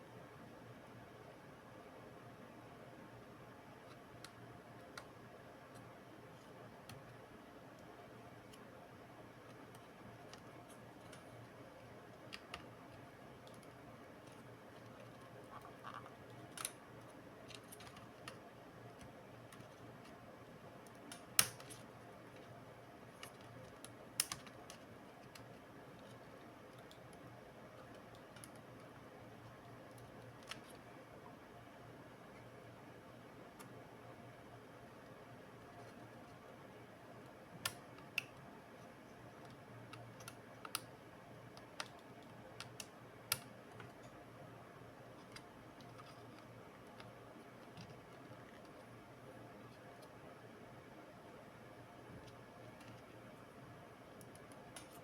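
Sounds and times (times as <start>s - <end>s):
low steady hum: 0.0s - 55.0s
small tools and parts clicking: 12.2s - 18.4s, 21.0s - 22.5s, 23.2s - 26.2s
clicks of laptop parts and tools: 21.0s - 21.9s.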